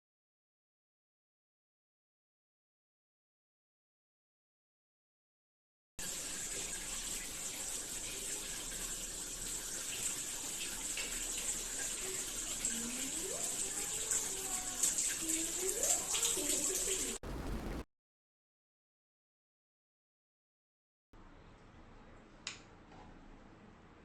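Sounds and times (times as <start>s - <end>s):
water spraying from shower head: 6.0s - 17.8s.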